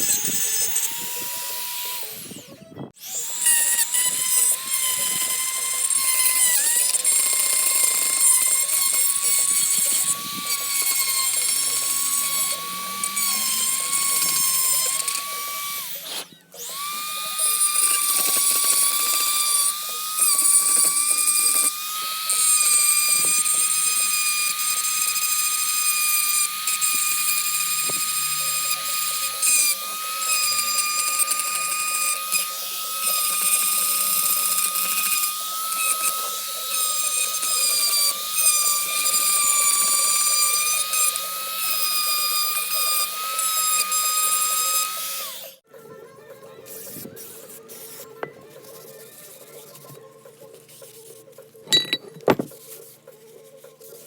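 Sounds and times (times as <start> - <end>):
power tool whining: 0.0 - 50.1, 51.1 - 53.5
tool scrubbing metal: 3.1 - 45.1, 50.7 - 54.0.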